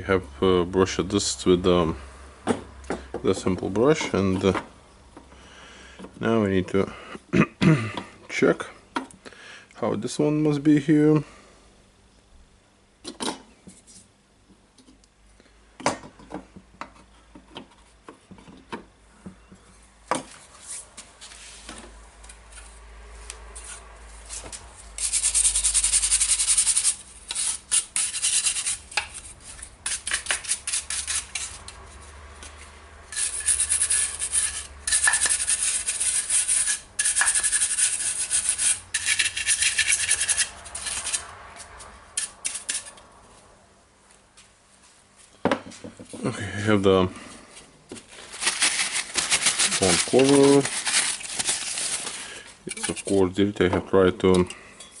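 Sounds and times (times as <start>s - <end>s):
fast rubbing strokes on housing: 23.6s - 31.7s, 33.1s - 41.3s.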